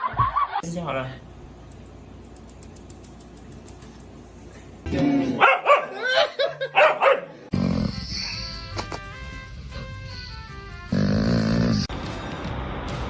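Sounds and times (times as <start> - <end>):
dog barking: 5.4 - 6.0, 6.7 - 7.4.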